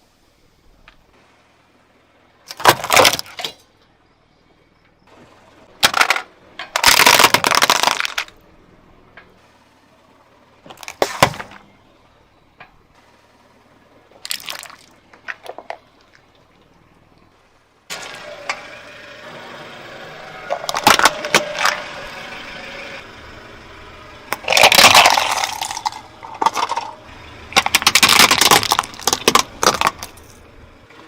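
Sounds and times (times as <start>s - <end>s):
tyre crushing brittle objects: 2.5s - 3.6s, 5.8s - 8.4s, 10.7s - 11.7s, 14.2s - 16.3s, 20.5s - 21.8s, 24.3s - 30.4s.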